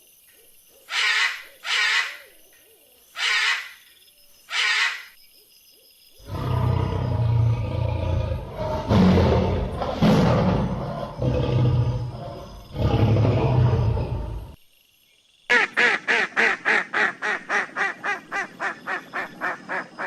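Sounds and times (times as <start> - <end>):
animal's deep rumbling roar: 6.2 - 14.6.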